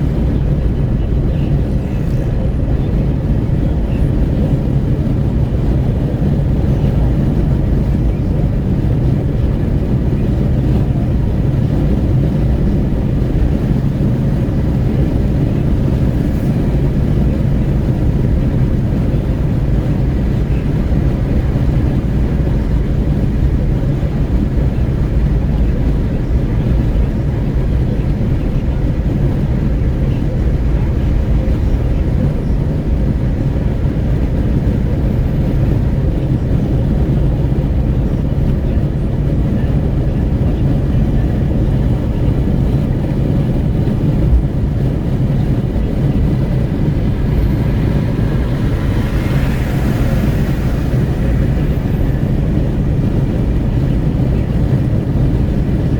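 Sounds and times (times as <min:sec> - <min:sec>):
road noise inside car: 0:00.0 - 0:55.9
wind rushing in car window: 0:00.0 - 0:55.9.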